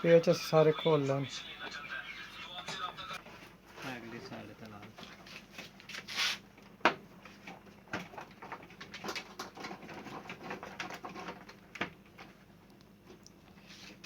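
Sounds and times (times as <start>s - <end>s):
plastic parts clicking and tapping: 7.9s - 12.3s.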